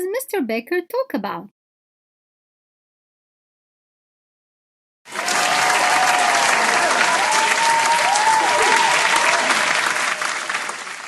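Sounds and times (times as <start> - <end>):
applause: 5.1 - 11.0
people cheering and whooping: 5.1 - 11.0.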